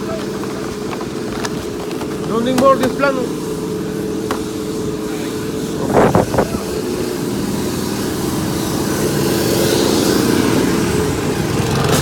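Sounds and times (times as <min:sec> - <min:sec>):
engine running steadily: 0:00.0 - 0:12.0
hiss: 0:03.1 - 0:12.0.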